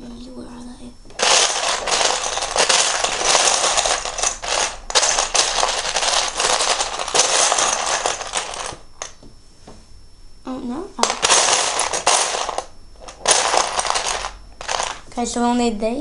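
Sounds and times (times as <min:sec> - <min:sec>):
plastic bricks clattering: 0:01.1 - 0:09.2, 0:11.0 - 0:15.0.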